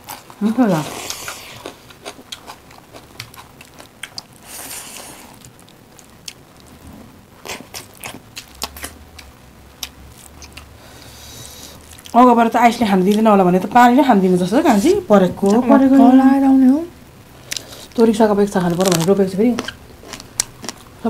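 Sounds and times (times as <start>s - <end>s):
wet chewing and mouth clicks: 1.0s - 6.7s, 7.4s - 10.7s, 18.9s - 20.9s.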